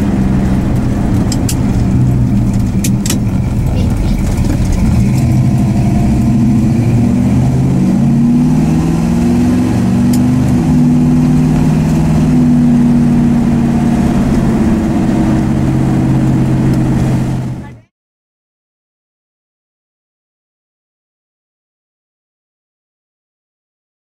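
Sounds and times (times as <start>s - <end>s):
car engine while driving: 0.0s - 17.9s.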